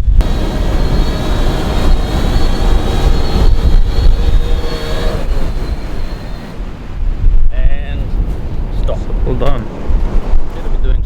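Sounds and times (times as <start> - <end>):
drone propellers whining: 0.0 - 10.8
wind buffeting microphone: 0.0 - 11.0.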